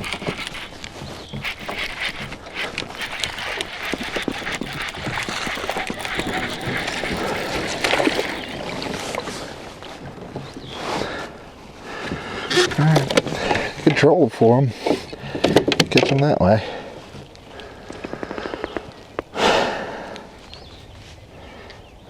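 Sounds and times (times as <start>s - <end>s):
small knocks and clicks: 0.0s - 10.6s
water splashing around kayak: 0.0s - 11.4s.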